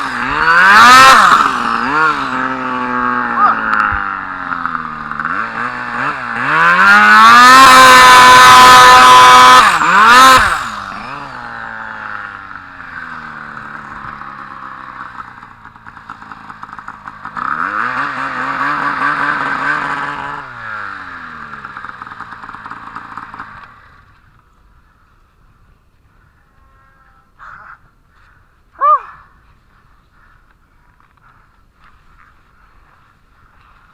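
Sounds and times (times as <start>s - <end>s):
snowmobile engine revving: 0.0s - 24.2s.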